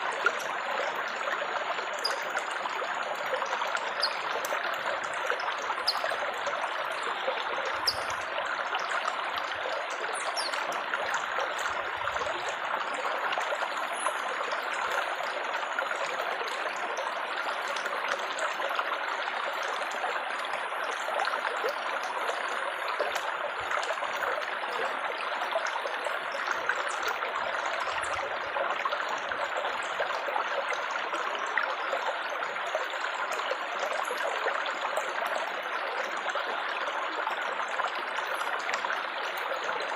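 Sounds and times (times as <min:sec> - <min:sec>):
water trickling and babbling: 0:00.0 - 0:39.9.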